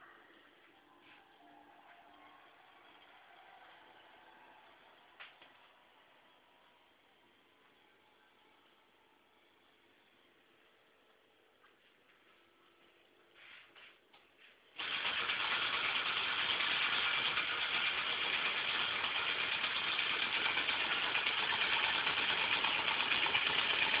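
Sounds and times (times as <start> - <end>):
steam engine running: 1.2 - 9.6, 14.8 - 24.0.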